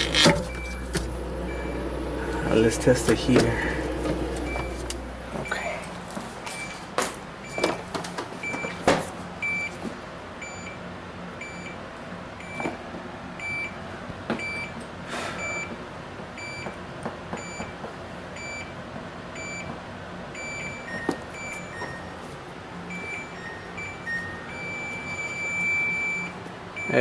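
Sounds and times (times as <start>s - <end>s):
refrigerator control panel beeping: 0.0s - 5.6s, 7.4s - 9.8s, 10.4s - 10.8s, 11.4s - 11.8s, 12.4s - 12.8s, 13.4s - 13.8s, 14.4s - 14.8s, 15.4s - 15.8s, 16.4s - 16.8s, 17.4s - 17.8s, 18.4s - 22.2s, 22.9s - 27.0s
knocks and clicks handling fridge: 6.9s - 9.6s, 16.4s - 18.0s.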